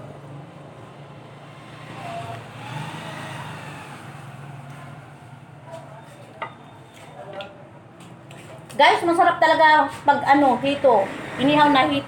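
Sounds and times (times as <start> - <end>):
road vehicle passing: 0.0 - 6.8, 9.3 - 12.0.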